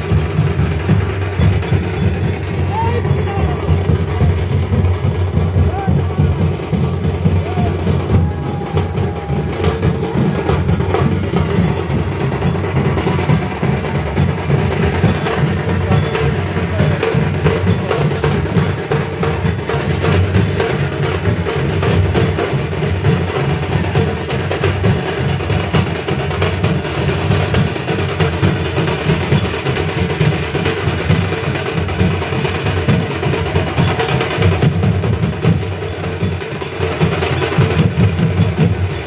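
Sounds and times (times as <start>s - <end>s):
percussion drumming: 0.0s - 39.0s
ringing metal percussion: 0.0s - 39.0s.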